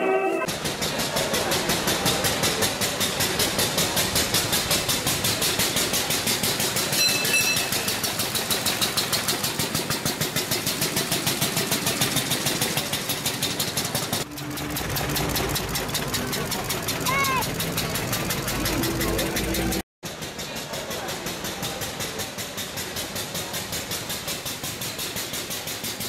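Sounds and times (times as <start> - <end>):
brief high tone: 0.0 - 0.5
single-cylinder engine running: 0.4 - 26.0.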